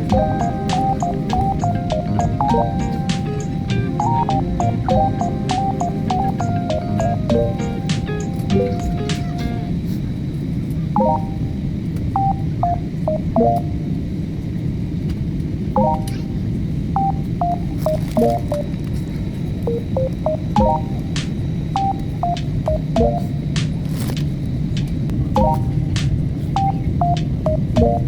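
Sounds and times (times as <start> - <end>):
melody of high notes: 0.0 - 9.8, 19.8 - 21.2, 25.4 - 25.9
jet cabin rumble: 0.0 - 28.0.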